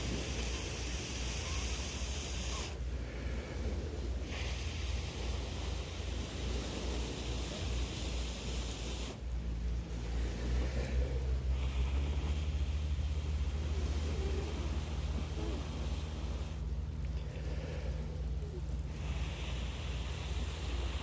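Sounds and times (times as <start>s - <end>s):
wind noise on microphone: 0.0s - 16.8s.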